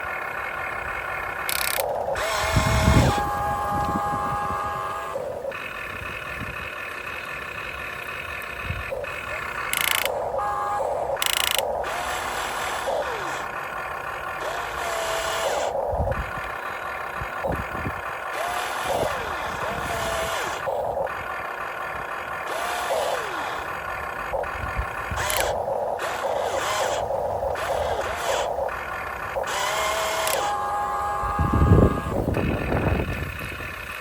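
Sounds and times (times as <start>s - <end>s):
small electric motors whining: 0.0s - 34.0s.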